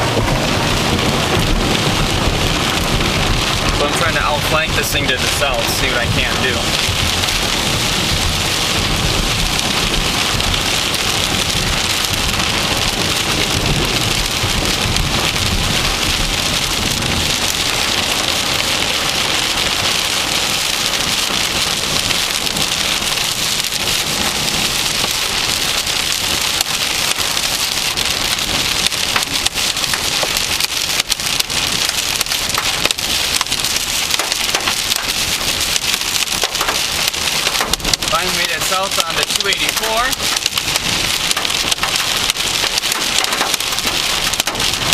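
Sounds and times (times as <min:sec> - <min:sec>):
heavy rain pelting a vehicle: 0:00.0 - 0:44.9
low rumble: 0:00.0 - 0:44.9
raindrop hits: 0:00.0 - 0:44.9.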